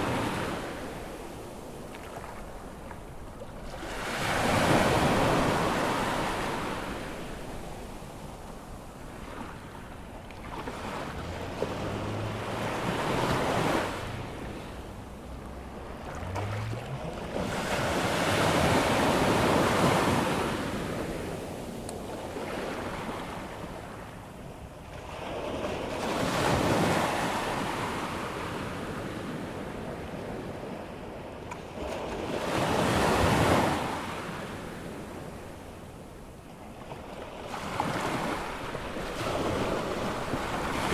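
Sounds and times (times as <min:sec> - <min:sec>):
surf breaking on sandy beach: 0:09.1 - 0:21.3.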